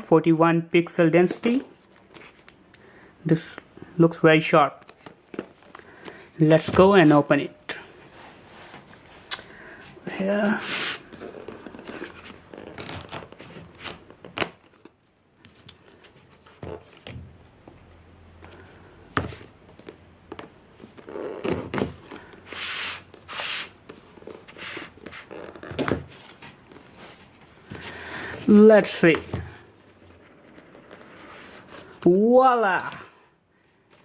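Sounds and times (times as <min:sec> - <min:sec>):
packaging rustling and sliding: 0:10.4 - 0:17.1, 0:20.7 - 0:28.4.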